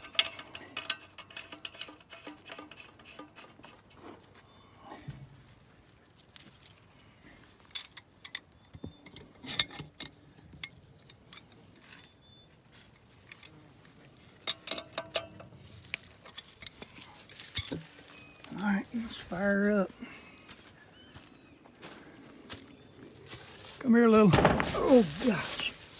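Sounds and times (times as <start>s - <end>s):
tools clinking on metal fittings: 0.0s - 4.0s, 7.6s - 11.8s, 14.4s - 18.5s.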